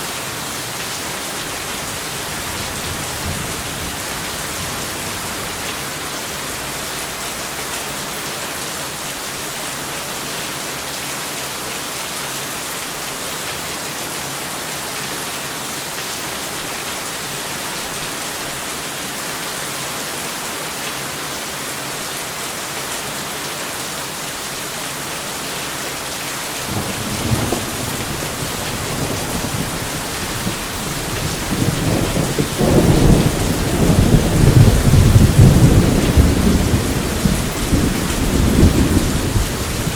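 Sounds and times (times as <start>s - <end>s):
heavy rain: 0.0s - 39.9s
rumbling thunder: 1.5s - 7.7s, 26.6s - 39.9s.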